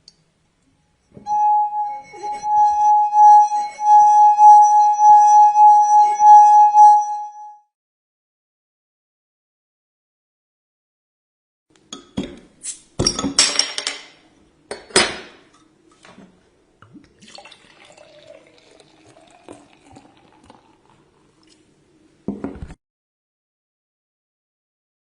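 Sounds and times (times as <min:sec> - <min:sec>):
liquid splashing in glassware: 0:16.8 - 0:21.6
liquid trickling: 0:16.8 - 0:21.6
glass clinking: 0:17.3 - 0:21.0.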